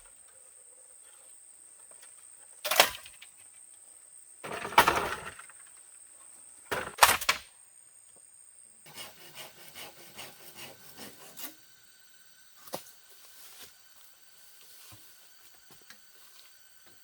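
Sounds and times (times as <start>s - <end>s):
wood rasping: 8.9s - 11.6s
wood scraping strokes: 8.9s - 11.6s.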